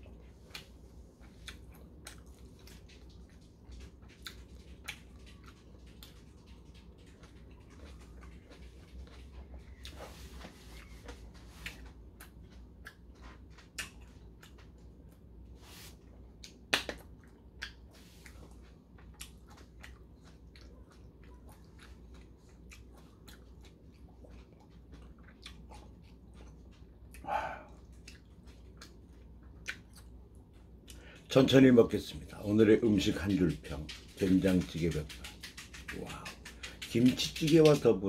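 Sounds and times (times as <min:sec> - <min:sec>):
chewing food: 0:00.0 - 0:38.0.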